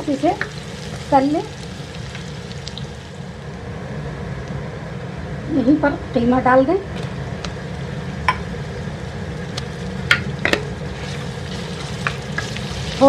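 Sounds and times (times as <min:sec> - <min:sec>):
meat sizzling in a pot: 0:00.0 - 0:03.5, 0:07.0 - 0:13.0.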